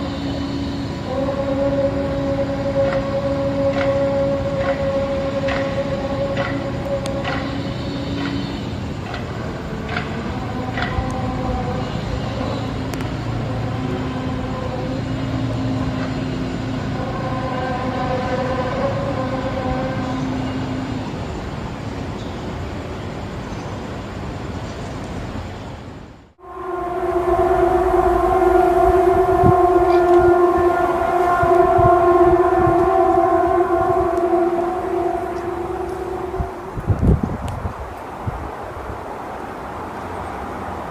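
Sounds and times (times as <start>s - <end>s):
loud horn-like drone: 0.0s - 22.1s, 26.4s - 38.0s
low rumbling noise: 0.0s - 23.4s, 25.9s - 40.9s
low droning rumble: 26.4s - 38.0s.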